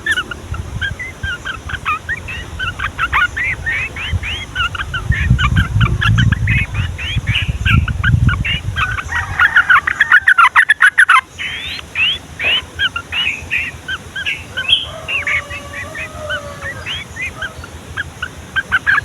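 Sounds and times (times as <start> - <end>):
low rumble: 0.0 - 9.8
bulbuls singing: 0.0 - 19.0.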